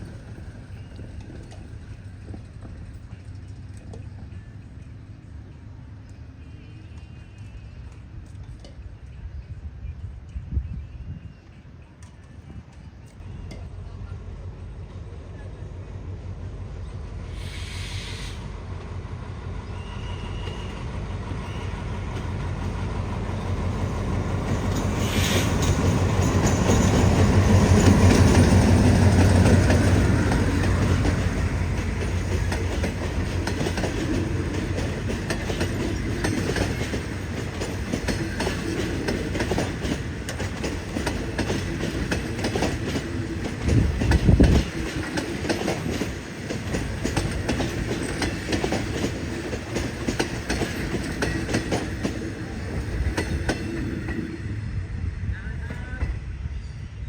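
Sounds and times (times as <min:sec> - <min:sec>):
train wheels clickety-clack: 0:00.0 - 0:05.0, 0:20.0 - 0:54.6
locomotive engine hum: 0:00.0 - 0:10.6, 0:11.5 - 0:56.5.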